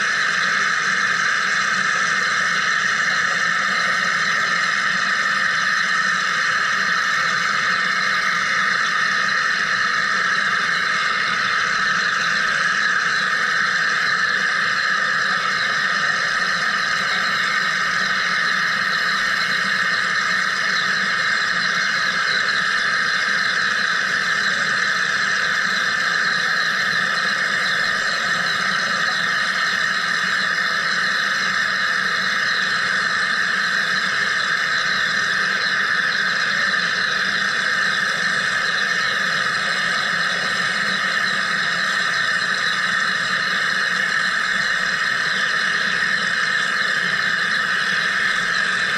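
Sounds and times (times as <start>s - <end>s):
faint machine hum: 0.0s - 48.9s
machine high-pitched hiss: 0.0s - 48.9s.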